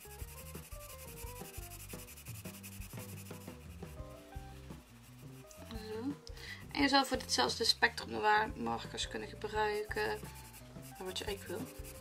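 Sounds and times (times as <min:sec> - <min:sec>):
pencil shading on paper: 0:00.0 - 0:06.1, 0:09.4 - 0:12.0
soft background music: 0:00.0 - 0:12.0.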